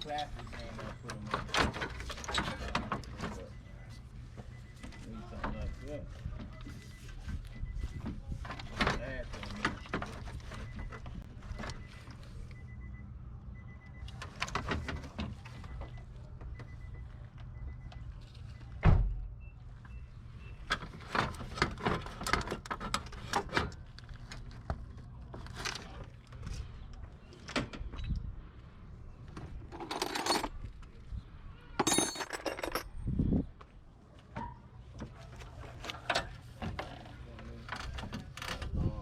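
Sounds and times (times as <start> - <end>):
hand tools clinking and rattling: 29.6 - 30.8, 31.8 - 32.9.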